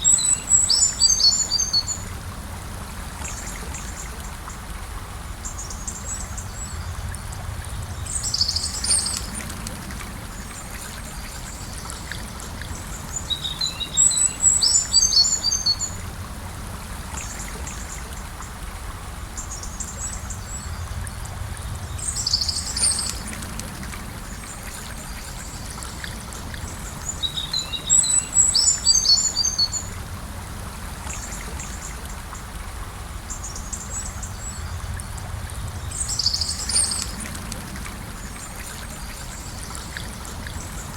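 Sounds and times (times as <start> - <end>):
birds singing: 0.0 - 2.1, 7.7 - 9.5, 10.4 - 16.0, 21.8 - 23.4, 24.3 - 30.0, 35.7 - 37.4
river flowing: 0.0 - 40.9.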